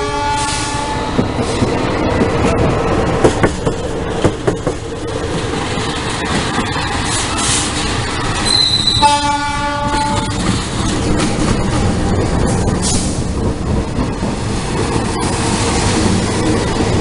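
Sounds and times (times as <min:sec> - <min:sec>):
train horn blast: 0:00.0 - 0:01.2, 0:08.5 - 0:10.4
train wheels clacking over rail joints: 0:00.4 - 0:17.0.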